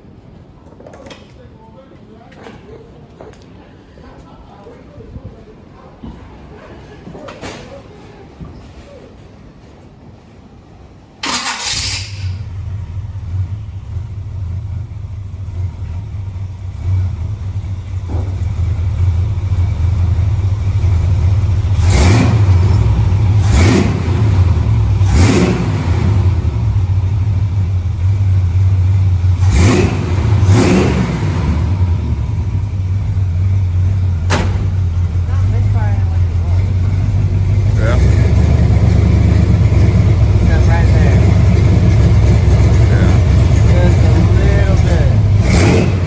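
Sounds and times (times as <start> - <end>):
engine cranking and starting: 11.2 - 13.5, 16.8 - 28.2, 29.2 - 46.0
engine idling: 11.2 - 46.0.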